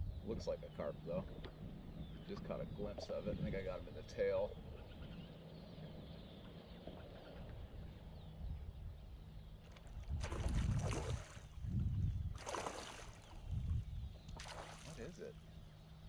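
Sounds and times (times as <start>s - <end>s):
low steady rumble: 7.4s - 16.0s
fish splashing in water: 10.2s - 11.6s, 12.4s - 13.4s, 14.3s - 15.1s.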